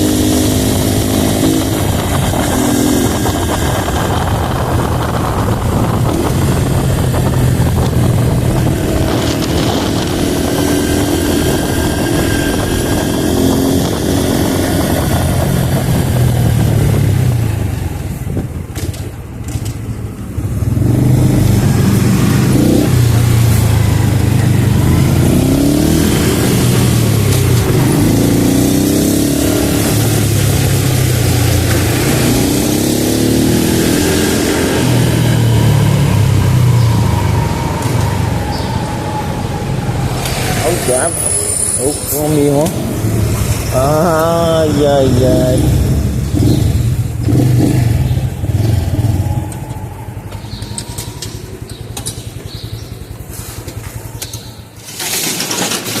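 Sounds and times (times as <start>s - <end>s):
rush of noise: 0.0s - 18.6s, 20.6s - 51.4s
motorcycle engine accelerating: 0.0s - 56.0s
motorcycle engine idling: 45.1s - 54.8s.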